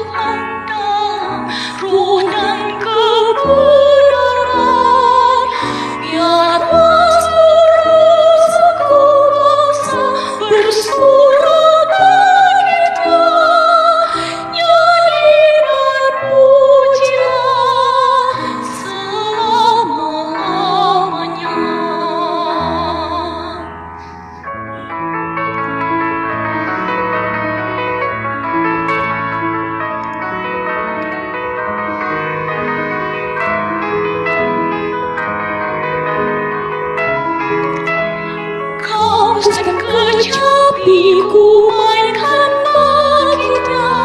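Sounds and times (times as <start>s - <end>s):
church choir singing: 2.2s - 18.9s, 31.8s - 44.0s.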